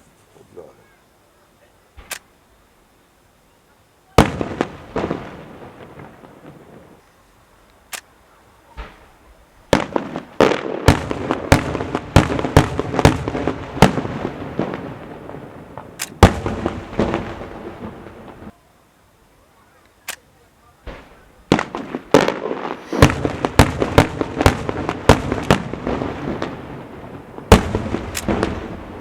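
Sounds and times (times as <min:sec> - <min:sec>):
fireworks bangs echoing: 0:04.1 - 0:07.0, 0:08.6 - 0:18.5, 0:20.8 - 0:29.0.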